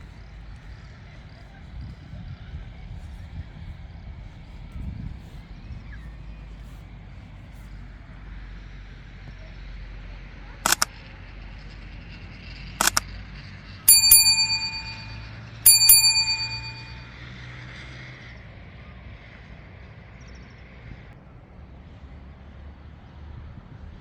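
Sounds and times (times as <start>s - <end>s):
sharp click: 10.7s - 10.9s, 12.8s - 13.0s, 13.9s - 17.0s
small metal bell ringing: 13.9s - 17.1s.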